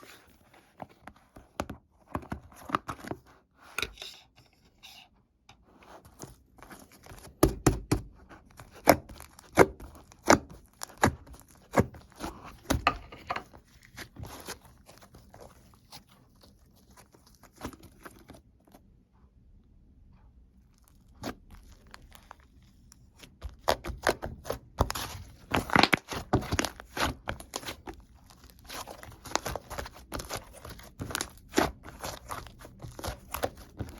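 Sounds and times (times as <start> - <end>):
hands squishing slime: 5.9 - 18.4, 20.7 - 33.9.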